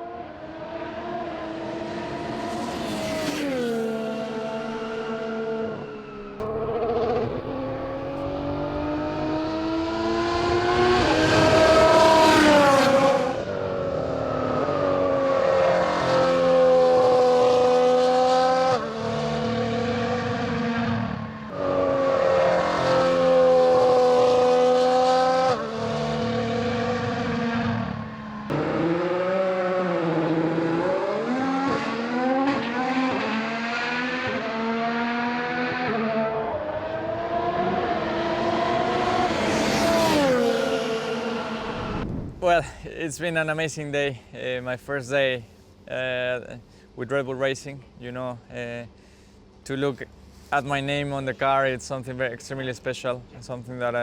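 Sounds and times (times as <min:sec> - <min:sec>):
racing car engine revving through gears: 0:00.0 - 0:42.2
racing car passing by: 0:00.1 - 0:42.5.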